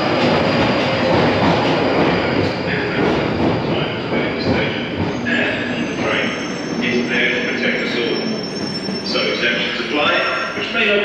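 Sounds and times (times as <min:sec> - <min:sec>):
train wheel and track noise: 0:00.0 - 0:11.0
high wheel squeals: 0:05.1 - 0:11.0.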